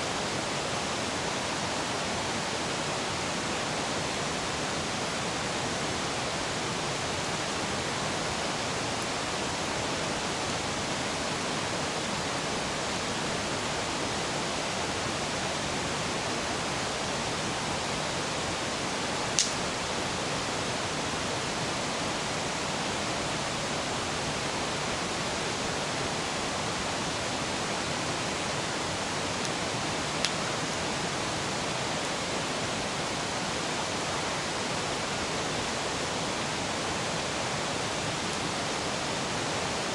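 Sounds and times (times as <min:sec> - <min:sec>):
river water rushing: 0:00.0 - 0:39.9
sharp clicks: 0:19.4 - 0:19.6.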